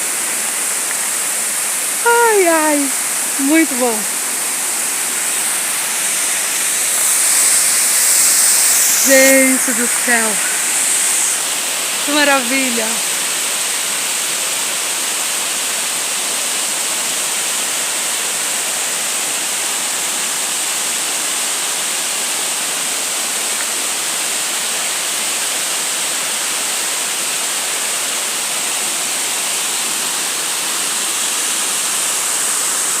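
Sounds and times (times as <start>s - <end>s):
rushing water: 0.0s - 33.0s.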